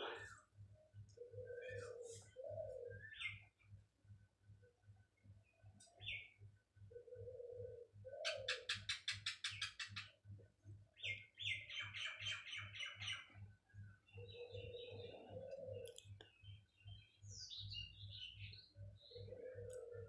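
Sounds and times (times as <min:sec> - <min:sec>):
small birds chirping: 0:00.0 - 0:20.0
lower bird calls: 0:01.1 - 0:03.6, 0:05.9 - 0:10.2, 0:14.0 - 0:20.0.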